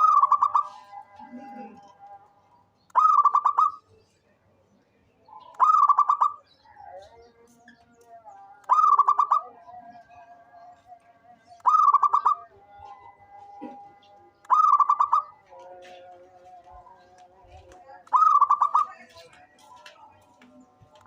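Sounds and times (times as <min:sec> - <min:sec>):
dove cooing: 0:00.0 - 0:02.0, 0:05.4 - 0:06.4, 0:08.7 - 0:09.7, 0:11.6 - 0:12.6, 0:13.6 - 0:15.4, 0:18.1 - 0:19.0.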